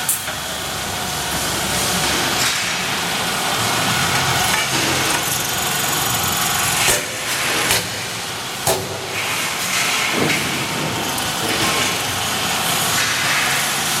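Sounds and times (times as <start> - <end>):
drilling machine running: 0.0 - 8.7.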